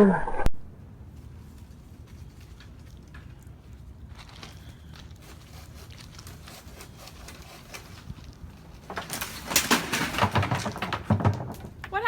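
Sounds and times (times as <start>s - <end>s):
loud crash of cracking and rustling: 5.4s - 12.0s.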